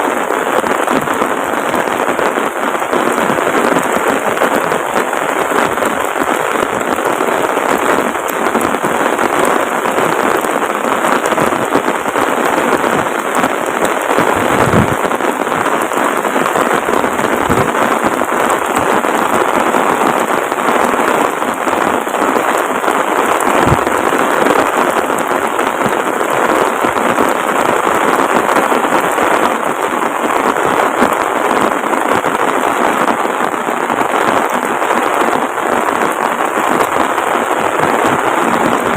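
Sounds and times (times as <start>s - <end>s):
heavy rain falling: 0.0s - 38.9s
dull low thumps: 14.4s - 15.0s, 23.6s - 24.0s.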